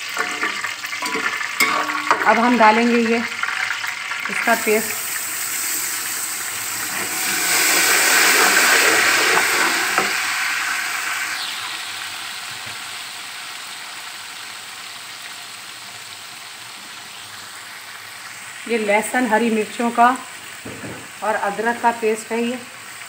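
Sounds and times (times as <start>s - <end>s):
paste sizzling in hot oil: 0.0s - 19.8s
spoon clicking against pot: 0.2s - 2.4s.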